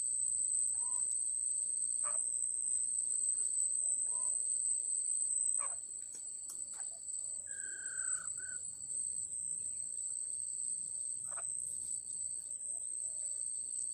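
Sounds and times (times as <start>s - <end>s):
insect trill in spurts: 0.0s - 13.9s.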